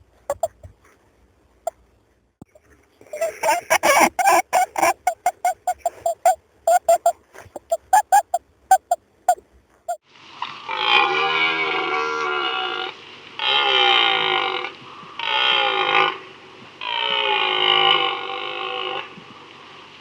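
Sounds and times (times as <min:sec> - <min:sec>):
rapid short animal calls: 0:00.3 - 0:01.0, 0:02.4 - 0:10.0
long low animal call: 0:02.5 - 0:09.0.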